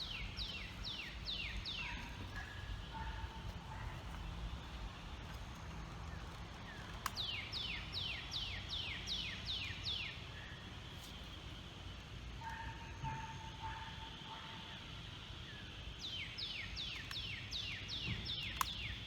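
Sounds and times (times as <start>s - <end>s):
low outdoor rumble: 0.0s - 13.4s.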